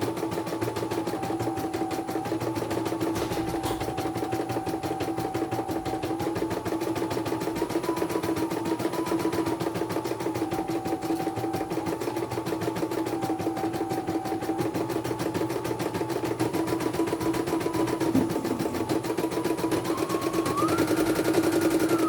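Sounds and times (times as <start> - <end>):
motor hum: 16.2 - 22.0
machine whine changing pitch: 16.8 - 22.0.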